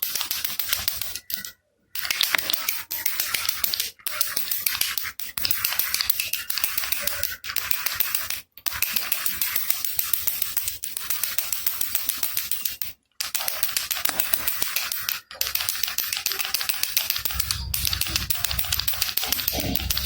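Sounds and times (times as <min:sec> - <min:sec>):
baby rattle shaken: 0:13.4 - 0:20.0.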